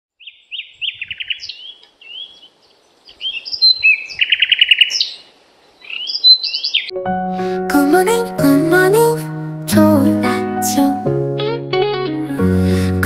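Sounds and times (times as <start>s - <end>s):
songbirds chirping and trilling: 0.1s - 6.9s.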